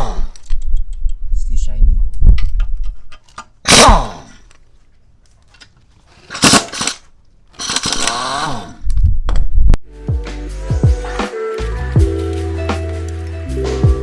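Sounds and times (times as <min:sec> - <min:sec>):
sharp click: 0:05.6 - 0:07.0, 0:07.6 - 0:08.7
motor revving and winding down: 0:07.6 - 0:08.8.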